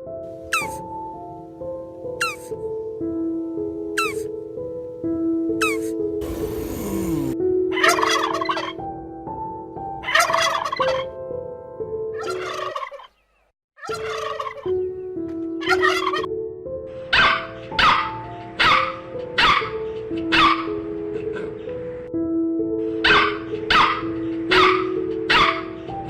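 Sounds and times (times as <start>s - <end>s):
background music: 0.0s - 13.1s, 13.8s - 26.0s
turkey gobbling: 4.0s - 4.3s, 7.8s - 8.8s, 10.0s - 11.1s, 12.2s - 13.2s, 13.8s - 14.7s, 15.6s - 16.3s, 23.1s - 25.7s.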